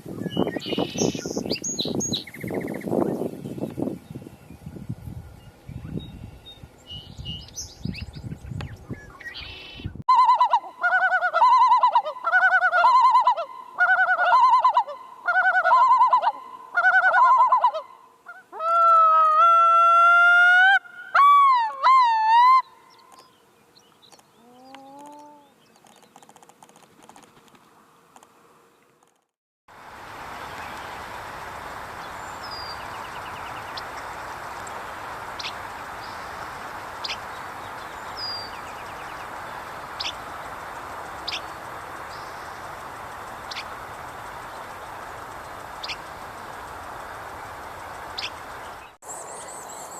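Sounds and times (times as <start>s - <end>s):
bird calls warbling: 0.0s - 4.6s, 5.4s - 18.5s, 30.4s - 49.9s.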